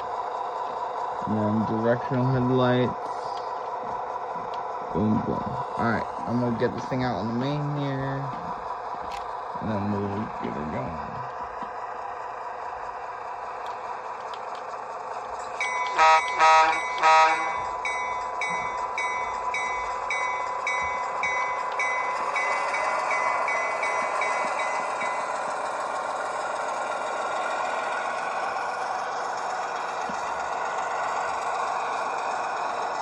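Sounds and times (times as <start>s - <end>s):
locomotive engine throttling up: 0.0s - 33.0s
locomotive bell ringing: 15.4s - 33.0s
short horn toots: 16.0s - 17.6s.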